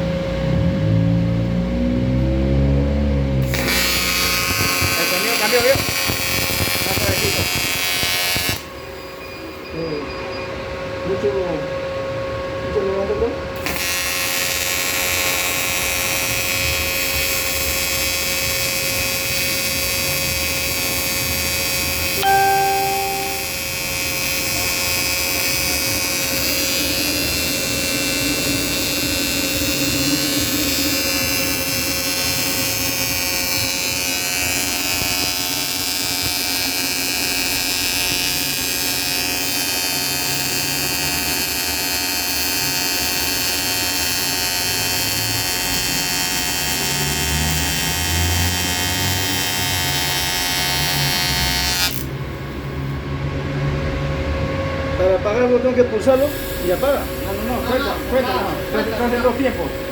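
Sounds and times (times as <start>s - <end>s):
welder electrical hum: 3.3s - 9.7s, 11.0s - 54.5s, 55.2s - 59.9s
short beep: 22.2s - 23.6s.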